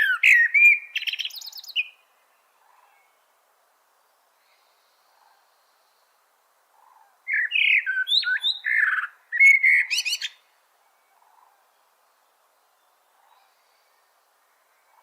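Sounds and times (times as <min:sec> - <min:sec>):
songbird singing whistled notes: 0:00.0 - 0:03.2, 0:06.8 - 0:11.6.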